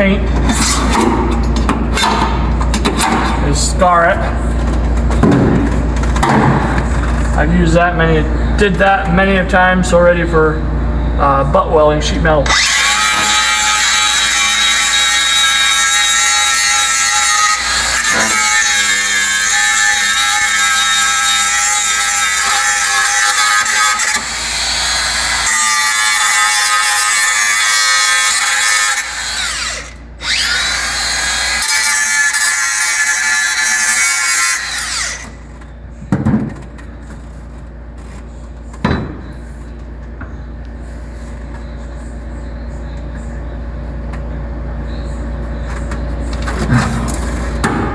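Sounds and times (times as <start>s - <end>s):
power tool whining on steel: 12.4s - 35.4s.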